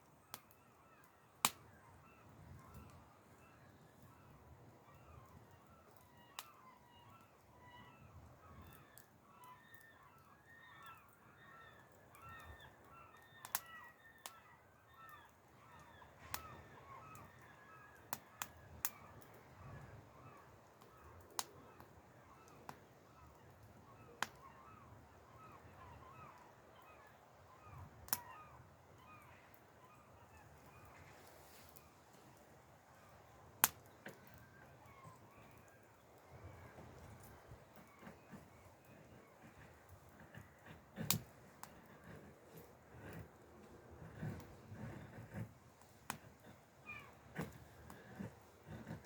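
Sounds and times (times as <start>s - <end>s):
campfire crackling and popping: 1.4s - 1.7s, 20.8s - 21.6s, 28.0s - 28.2s, 32.9s - 35.5s, 36.7s - 46.6s, 47.3s - 49.0s.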